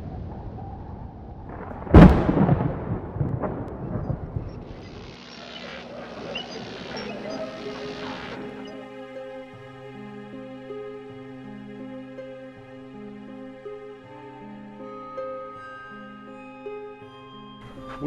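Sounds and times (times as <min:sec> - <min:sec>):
loud rumbling crack: 0:00.0 - 0:07.3
steady hiss: 0:04.0 - 0:08.9.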